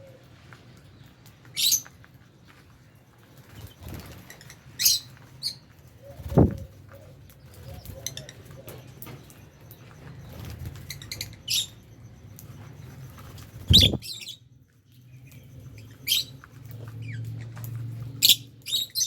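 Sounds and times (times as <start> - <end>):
lovebirds chirping: 3.4 - 17.4.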